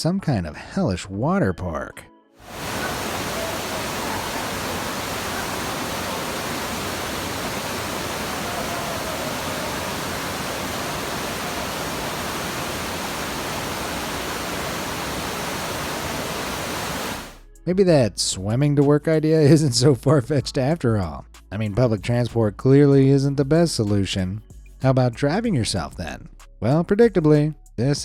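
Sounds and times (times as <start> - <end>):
floodwater rushing: 2.4 - 17.4.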